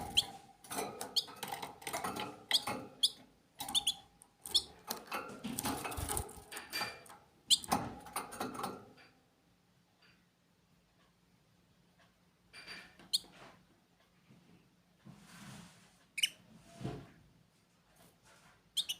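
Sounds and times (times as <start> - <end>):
small birds chirping: 2.5 - 5.0
rustling and scratching: 3.6 - 7.2, 15.0 - 18.8.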